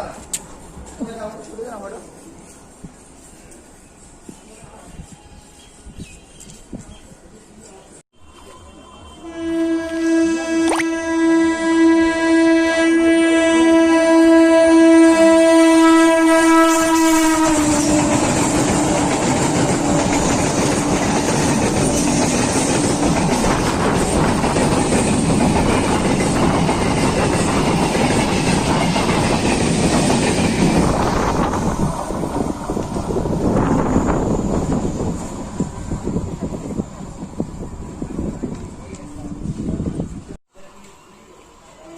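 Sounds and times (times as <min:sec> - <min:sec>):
train horn: 0:08.2 - 0:19.0
passing train wheel clatter: 0:15.1 - 0:41.0.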